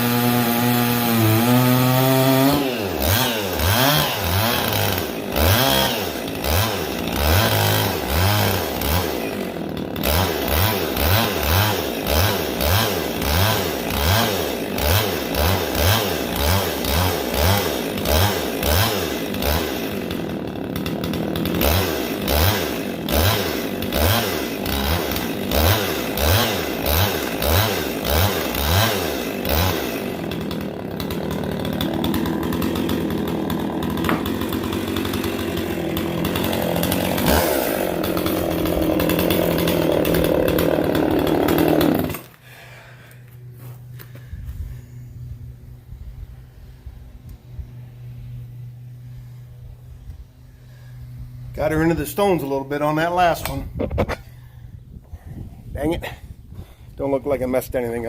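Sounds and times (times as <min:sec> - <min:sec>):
file rasping on chainsaw chain: 0:00.1 - 0:42.3.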